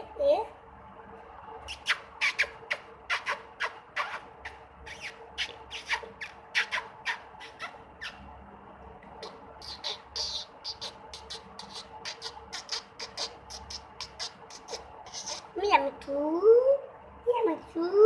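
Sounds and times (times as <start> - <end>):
parrot squawking and chirping: 1.7 - 8.2, 9.2 - 15.6.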